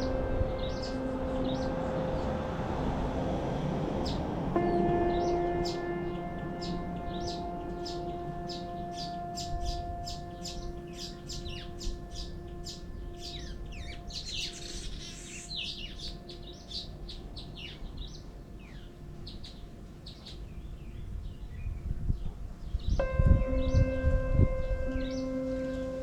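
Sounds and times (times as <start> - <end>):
low rumble: 0.0 - 14.2, 22.9 - 26.0
low hum-like tone: 0.0 - 19.8
small birds chirping: 4.0 - 24.0.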